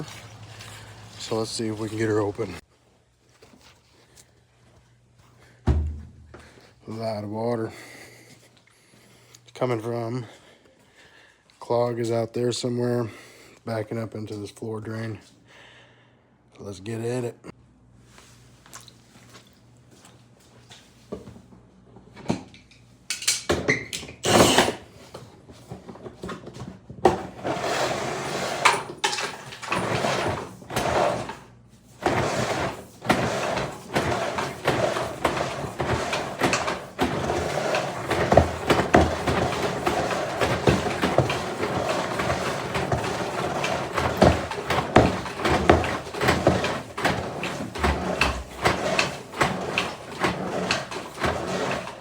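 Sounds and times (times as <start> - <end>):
drain cable machine rattling: 27.4 - 31.4, 32.0 - 52.0
knocks and clatter: 33.1 - 52.0.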